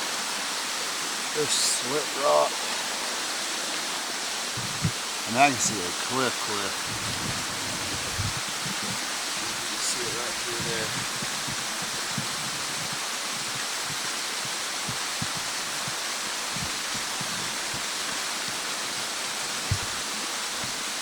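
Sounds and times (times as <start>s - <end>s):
waterfall rushing: 0.0s - 21.0s
soft low thumps: 4.5s - 5.0s, 6.7s - 9.8s, 10.4s - 14.1s, 14.9s - 17.9s, 19.6s - 20.0s.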